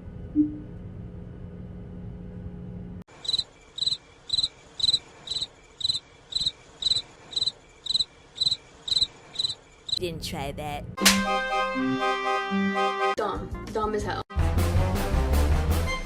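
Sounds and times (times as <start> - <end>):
low hum: 0.0 - 3.0
cricket chirping: 3.1 - 10.0.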